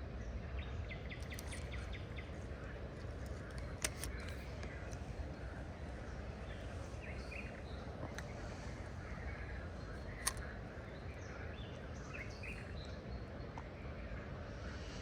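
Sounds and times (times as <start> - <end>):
outdoor background noise: 0.0 - 15.0
small birds chirping: 0.0 - 15.0
sharp click: 10.1 - 10.5.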